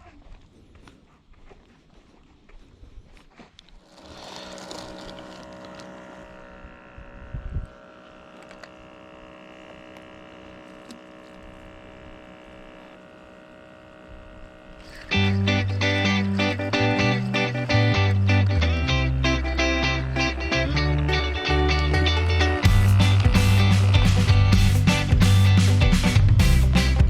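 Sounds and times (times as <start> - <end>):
small motor humming: 3.7 - 27.0
guitar music: 15.0 - 27.0.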